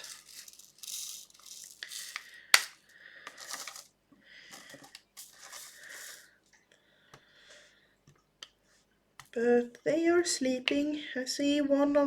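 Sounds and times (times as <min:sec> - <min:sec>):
plastic pieces clicking and rattling: 0:00.0 - 0:03.9.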